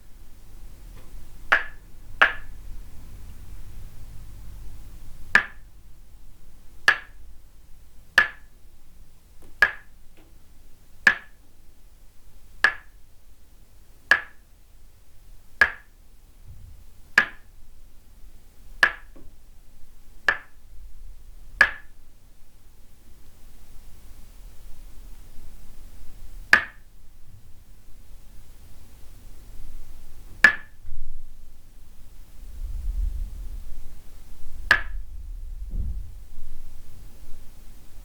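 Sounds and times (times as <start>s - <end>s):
wooden mallet tapping wooden stake: 1.0s - 2.5s, 5.4s - 5.6s, 6.9s - 7.2s, 8.2s - 8.5s, 9.5s - 10.3s, 11.1s - 11.4s, 12.6s - 12.9s, 14.1s - 14.4s, 15.6s - 15.9s, 17.2s - 17.5s, 18.8s - 19.3s, 20.3s - 20.6s, 21.6s - 21.9s, 26.5s - 26.8s, 30.4s - 30.8s, 34.7s - 35.0s.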